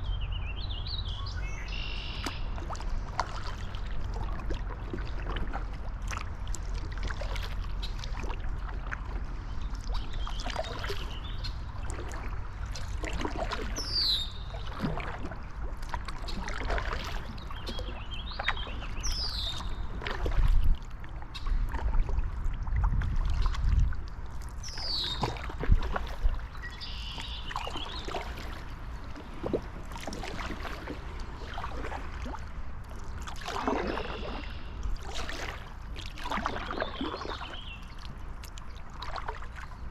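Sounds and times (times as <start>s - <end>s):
paddle splashing water: 1.5s - 39.9s
wind buffeting microphone: 17.5s - 26.8s.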